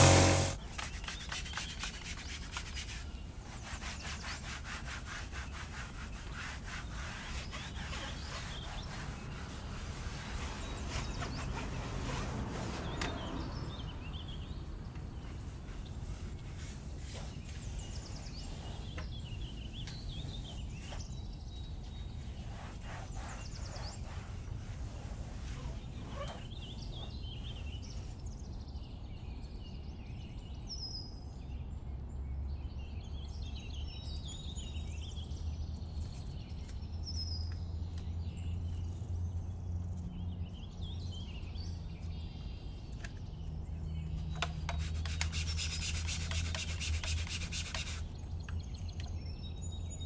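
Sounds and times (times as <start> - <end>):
brush scrubbing: 0.0 - 12.3, 22.4 - 25.6, 44.7 - 48.1.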